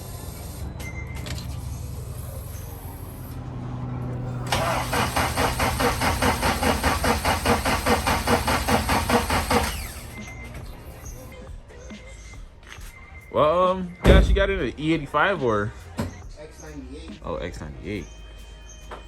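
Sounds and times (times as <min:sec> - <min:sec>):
engine cranking on starter: 0:04.1 - 0:11.2.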